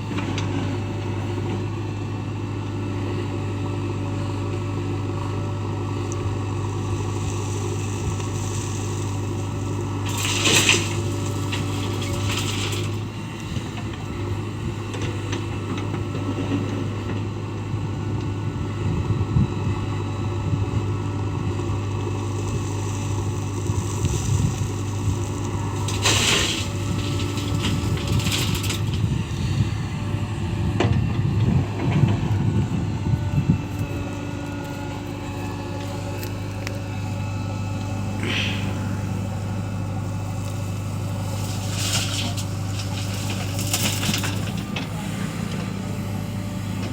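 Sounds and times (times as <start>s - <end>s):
diesel engine running: 0.0s - 46.9s
soil crunching and clattering: 5.7s - 17.3s, 21.6s - 30.2s, 33.5s - 46.9s
short hiss: 38.2s - 39.2s.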